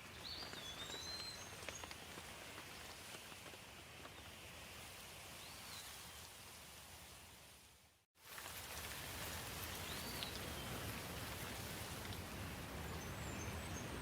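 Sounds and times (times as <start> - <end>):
steady rain hiss: 0.0 - 14.0
water drips: 8.2 - 13.0.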